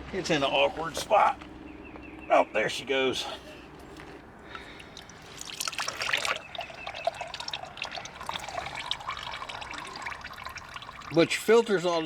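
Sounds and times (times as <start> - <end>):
oil trickling and dripping: 3.7 - 12.0.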